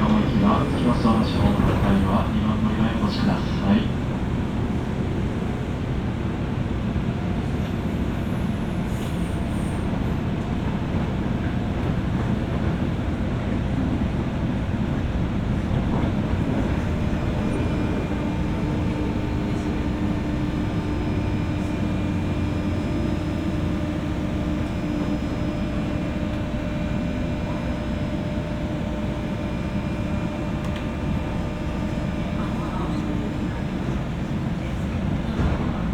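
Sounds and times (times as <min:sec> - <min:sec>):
train cabin rumble: 0:00.0 - 0:35.9
electrical hum: 0:16.1 - 0:34.4.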